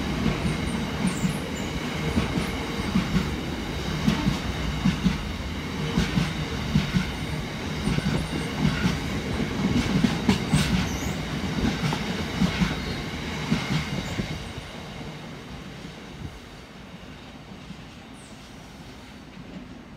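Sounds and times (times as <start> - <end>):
train wheels rumbling on rails: 0.0 - 19.9.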